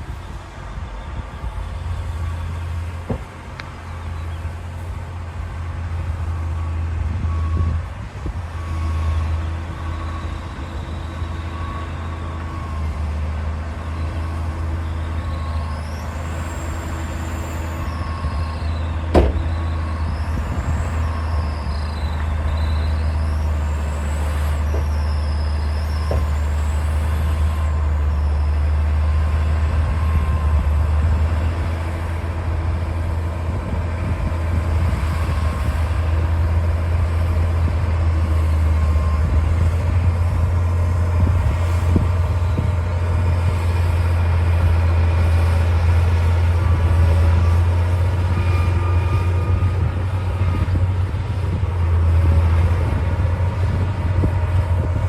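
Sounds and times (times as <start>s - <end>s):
bulldozer diesel engine running: 0.0s - 55.0s
high squeals: 8.5s - 32.2s, 41.0s - 55.0s
metal knocks and clanks: 19.1s - 19.5s.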